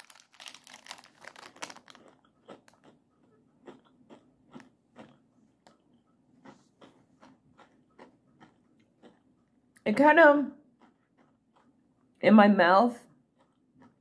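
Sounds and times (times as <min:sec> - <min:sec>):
candy crunching: 0:00.0 - 0:09.4
soft chewing: 0:00.9 - 0:09.9, 0:10.6 - 0:12.2, 0:13.1 - 0:14.0.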